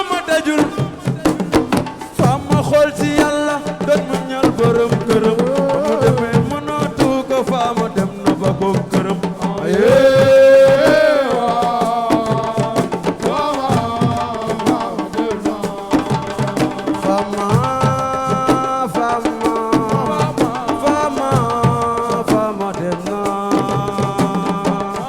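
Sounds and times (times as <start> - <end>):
fast hand drum percussion: 0.0 - 25.0.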